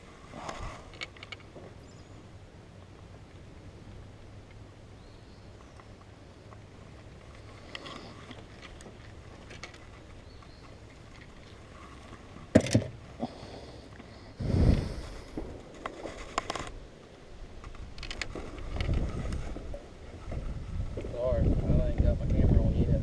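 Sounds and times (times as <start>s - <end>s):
wind gust on microphone: 14.4s - 15.6s, 18.6s - 23.0s.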